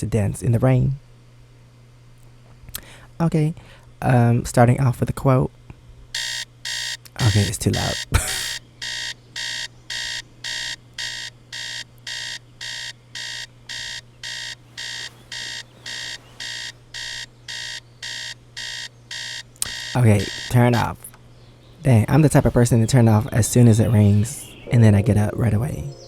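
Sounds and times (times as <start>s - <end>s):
steady low hum: 0.0s - 26.0s
electronic alarm beeping: 6.2s - 21.1s.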